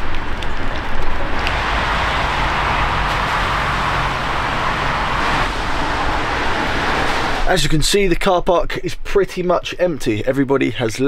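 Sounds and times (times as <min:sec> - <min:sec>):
low vehicle engine hum: 0:00.0 - 0:07.8
steady rain hiss: 0:00.0 - 0:08.0.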